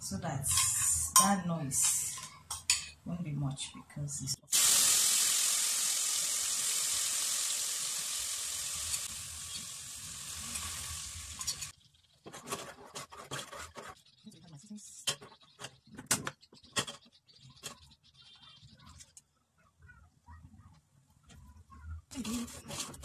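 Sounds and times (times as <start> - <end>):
food sizzling in hot oil: 4.4 - 11.7.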